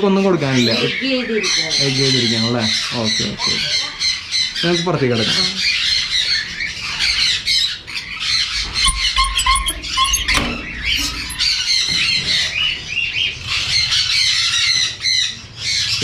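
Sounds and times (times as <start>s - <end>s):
parrots squawking and chattering: 0.2s - 12.5s
low whistled notes: 8.8s - 11.5s.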